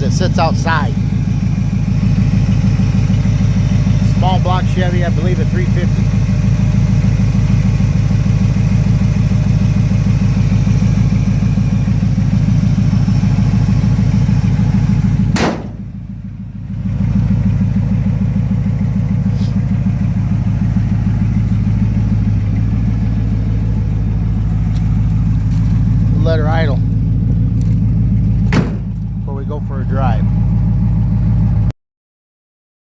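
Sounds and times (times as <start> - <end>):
car engine idling: 0.0 - 31.7
sharp click: 15.4 - 15.8.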